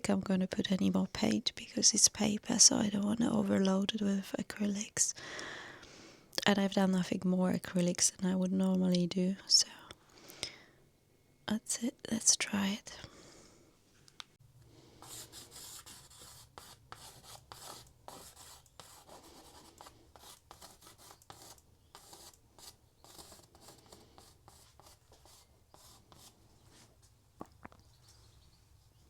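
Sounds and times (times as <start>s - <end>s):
pastel scratching on paper: 15.0s - 26.9s.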